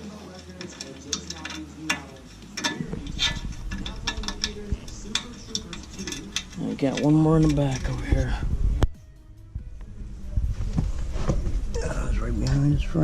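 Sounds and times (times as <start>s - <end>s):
hand tools clicking and knocking: 0.0s - 8.3s.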